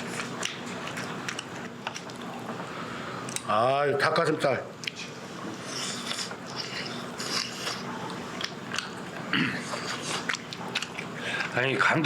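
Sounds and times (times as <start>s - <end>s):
person chewing food: 0.0s - 2.6s, 4.8s - 11.6s.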